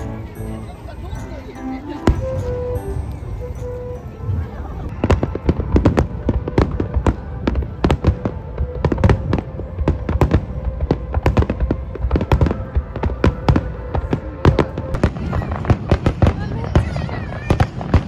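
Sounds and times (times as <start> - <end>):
fireworks bursting with loud bangs: 4.4 - 18.0.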